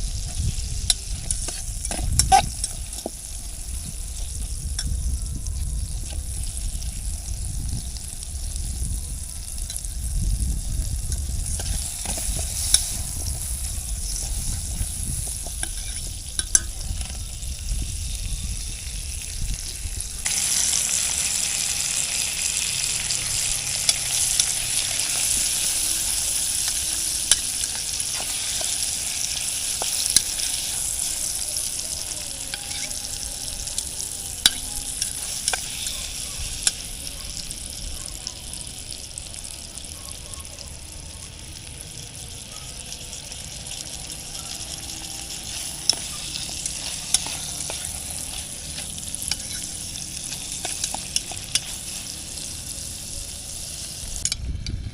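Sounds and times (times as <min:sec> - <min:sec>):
food sizzling in a pan: 0:00.0 - 0:54.4
utensil clicking against pan: 0:44.7 - 0:52.5.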